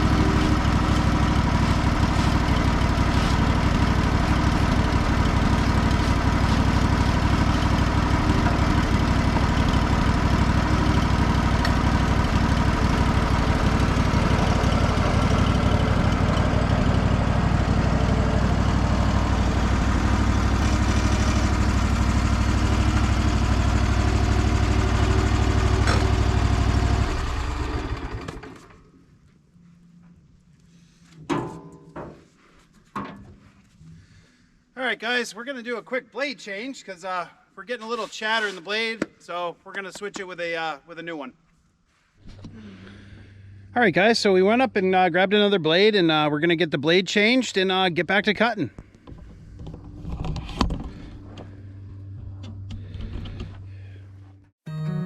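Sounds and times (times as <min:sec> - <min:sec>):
sawmill engine running: 0:00.0 - 0:29.0.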